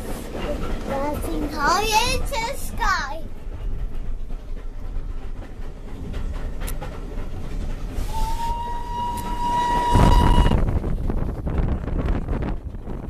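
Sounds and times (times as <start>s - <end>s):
train rumbling on rails: 0.0s - 13.0s
steam locomotive whistle: 8.0s - 10.6s.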